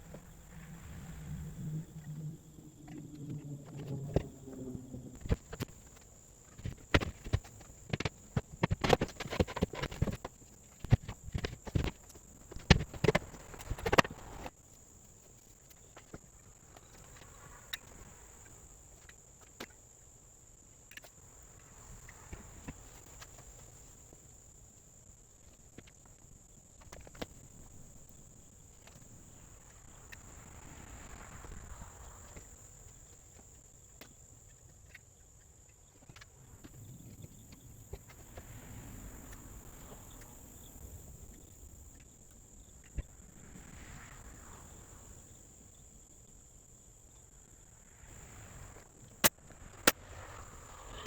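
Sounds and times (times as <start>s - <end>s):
high-pitched whine: 0.0s - 7.4s.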